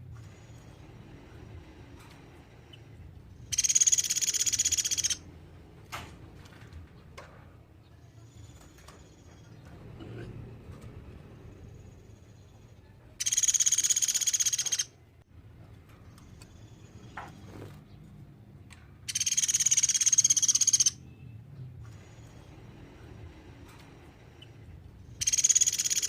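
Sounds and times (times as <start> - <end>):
woodpecker trills: 3.5 - 5.2, 13.2 - 14.9, 19.1 - 21.0, 25.2 - 26.0.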